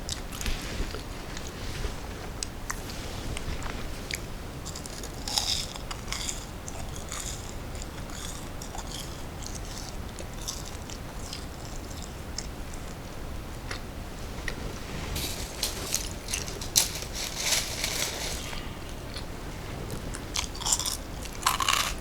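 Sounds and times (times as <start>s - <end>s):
person chewing crunchy snack: 4.6s - 12.8s, 15.2s - 19.3s, 19.9s - 22.0s.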